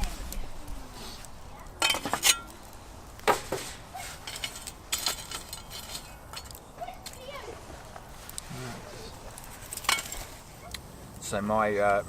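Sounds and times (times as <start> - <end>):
metal cookware clanking: 1.8 - 2.5, 4.2 - 6.6, 9.6 - 10.3.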